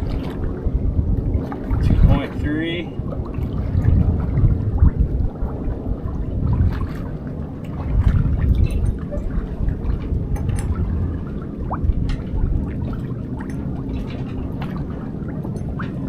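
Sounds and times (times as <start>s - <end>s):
water lapping against boat hull: 0.0s - 16.0s
small splashes and clicks: 6.6s - 10.9s, 11.7s - 16.0s.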